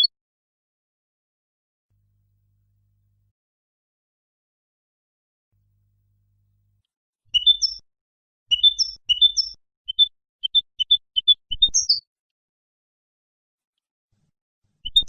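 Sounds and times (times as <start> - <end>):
goldfinch twittering song: 7.3 - 7.8, 8.5 - 12.0.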